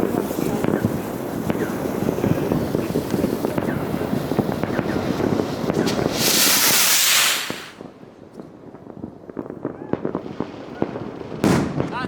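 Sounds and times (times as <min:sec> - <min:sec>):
loud hissing rush: 0:00.0 - 0:07.8
fireworks crackling and popping: 0:00.0 - 0:12.0.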